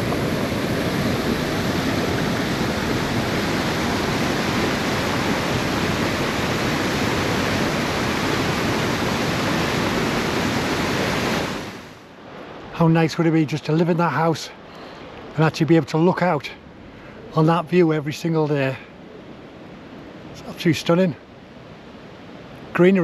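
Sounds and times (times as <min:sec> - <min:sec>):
river water rushing: 0:00.0 - 0:17.5.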